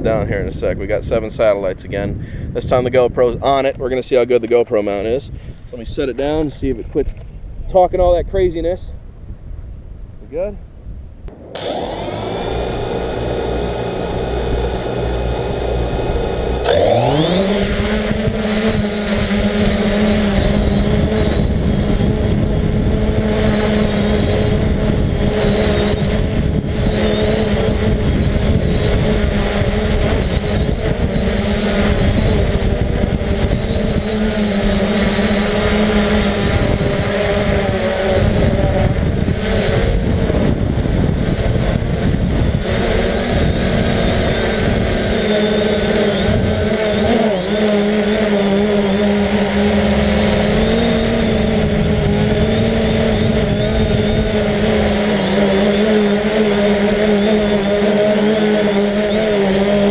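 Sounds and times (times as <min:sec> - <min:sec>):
quadcopter propellers whirring: 0:00.0 - 0:07.5, 0:11.3 - 0:59.9.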